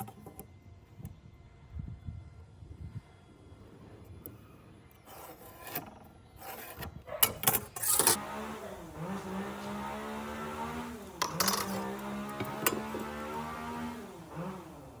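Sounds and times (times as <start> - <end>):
hand scraping on wood: 5.1 - 7.2.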